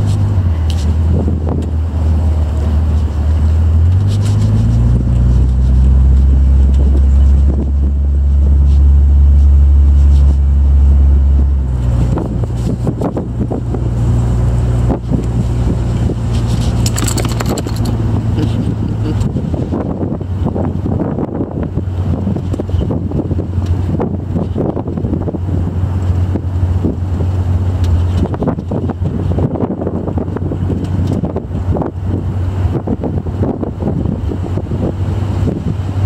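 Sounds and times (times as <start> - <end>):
car engine running: 0.0 - 36.0
wind buffeting microphone: 11.4 - 36.0.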